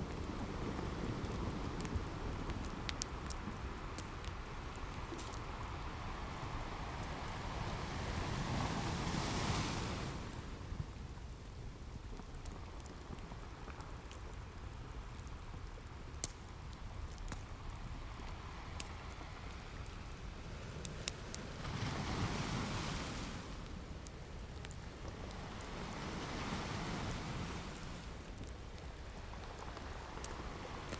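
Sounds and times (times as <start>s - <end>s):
ocean waves washing on shore: 0.0s - 11.3s, 17.8s - 30.9s
log fire crackling: 0.0s - 30.9s.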